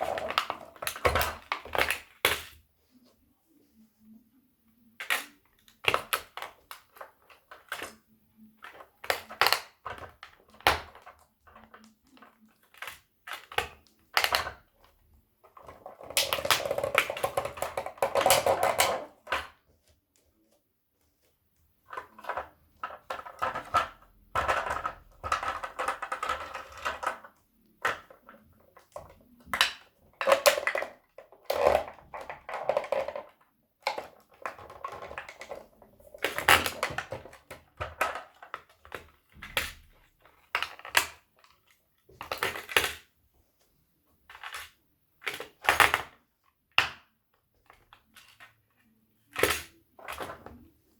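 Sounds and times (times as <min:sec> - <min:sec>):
plastic crunching and grinding: 0:00.0 - 0:02.6, 0:04.9 - 0:43.2, 0:44.2 - 0:50.9
toy cars cracking underfoot: 0:08.6 - 0:19.6.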